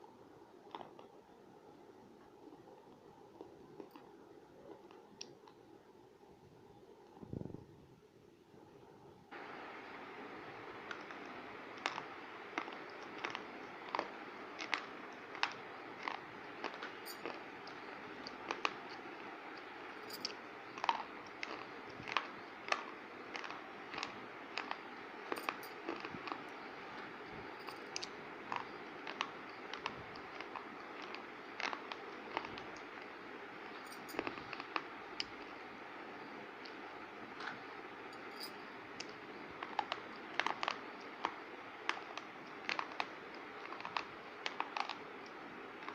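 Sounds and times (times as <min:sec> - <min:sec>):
steady hiss: 0:09.3 - 0:40.4.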